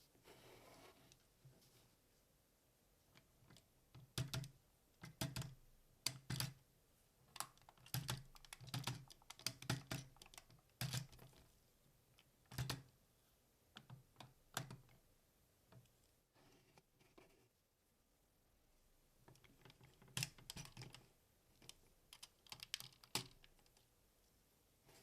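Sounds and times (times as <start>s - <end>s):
plastic toy parts clicking: 7.3s - 11.4s, 19.3s - 21.0s, 21.6s - 23.8s.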